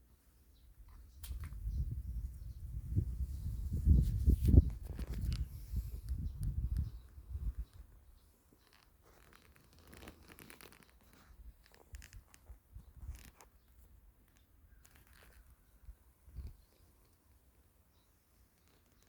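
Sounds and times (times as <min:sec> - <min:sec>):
low wind rumble: 0:01.4 - 0:07.7
rustling and scratchy crackles: 0:03.2 - 0:19.0.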